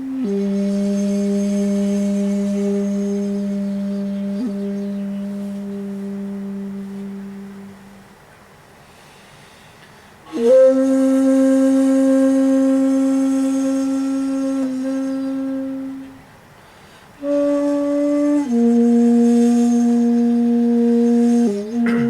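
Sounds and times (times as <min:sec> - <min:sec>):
solo shakuhachi: 0:00.0 - 0:08.1, 0:10.3 - 0:16.4, 0:17.2 - 0:22.0.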